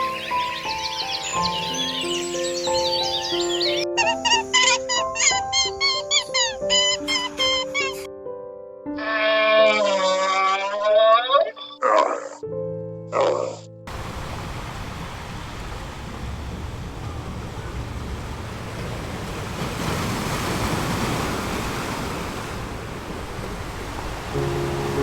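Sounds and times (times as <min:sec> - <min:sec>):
music: 0:00.0 - 0:13.9, 0:24.3 - 0:25.0.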